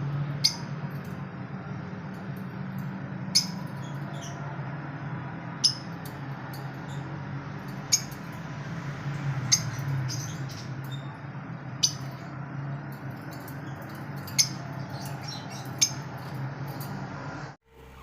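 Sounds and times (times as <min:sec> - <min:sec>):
steady low hum: 0:00.0 - 0:18.0
lovebirds chirping: 0:03.2 - 0:04.6, 0:05.6 - 0:17.0.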